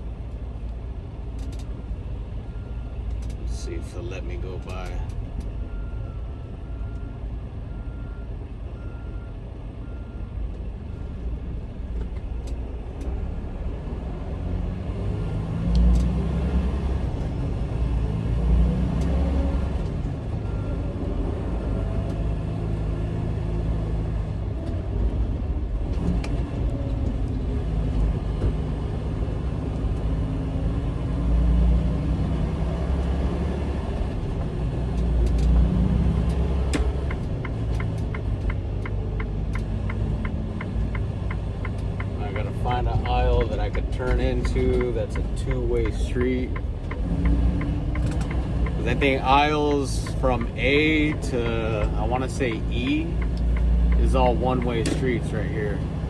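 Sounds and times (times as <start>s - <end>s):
truck diesel engine running: 15.0s - 56.0s.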